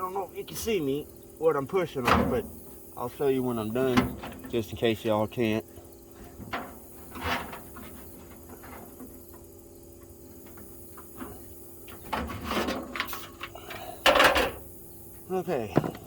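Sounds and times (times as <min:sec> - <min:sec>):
metallic scraping and knocks: 0:06.1 - 0:14.7.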